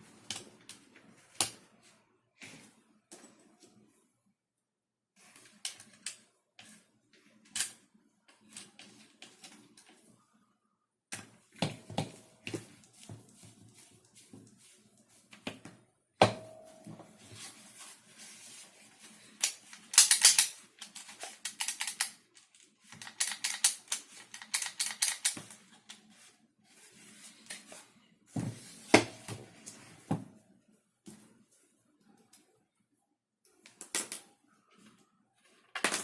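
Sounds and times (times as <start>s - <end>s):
plastic parts clicking and rattling: 19.3s - 26.1s.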